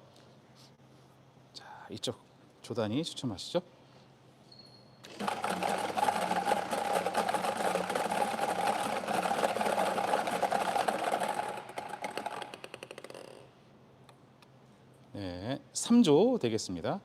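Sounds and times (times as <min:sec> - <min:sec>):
machine motor hum: 0:05.1 - 0:13.4
balls clattering inside machine: 0:05.1 - 0:13.5.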